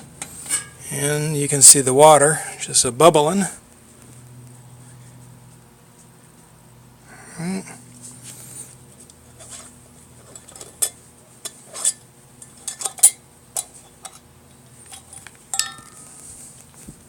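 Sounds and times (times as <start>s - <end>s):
cooking pot and utensils clinking: 15.0s - 16.0s.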